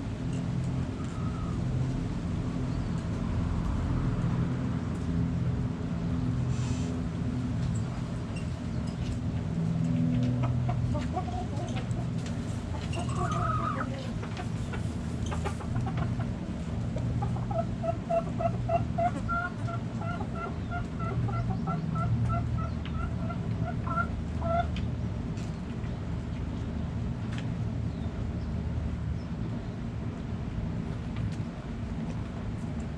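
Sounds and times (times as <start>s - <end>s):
hen clucking: 10.4s - 24.7s.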